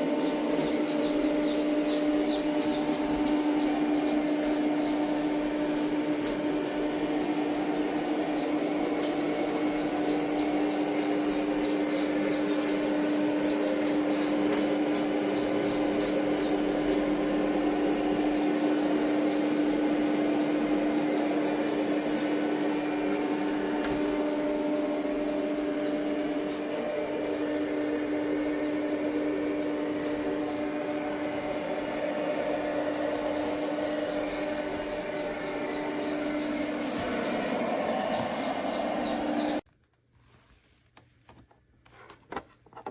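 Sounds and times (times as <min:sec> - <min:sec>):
steady machine hum: 0:00.0 - 0:39.7.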